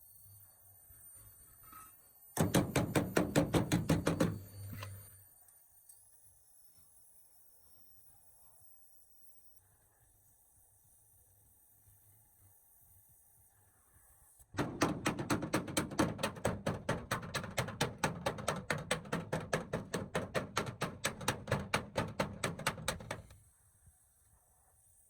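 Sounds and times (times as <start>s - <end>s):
rapid knocks: 2.4s - 4.5s, 14.6s - 23.3s.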